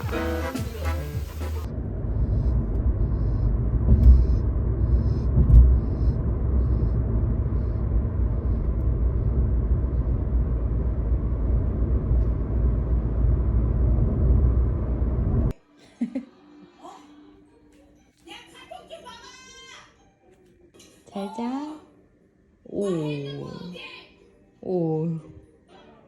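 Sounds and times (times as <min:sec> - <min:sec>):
low rumble: 0:00.7 - 0:15.6.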